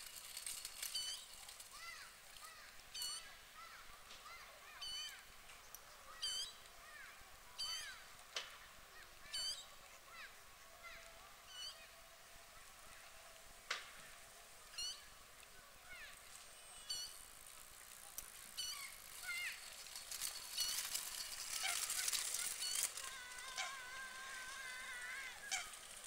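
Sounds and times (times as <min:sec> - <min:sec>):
bird chirps: 0:02.9 - 0:03.4, 0:04.7 - 0:06.7, 0:07.6 - 0:08.0, 0:09.0 - 0:09.8, 0:11.4 - 0:11.9, 0:14.7 - 0:15.2, 0:16.0 - 0:17.3.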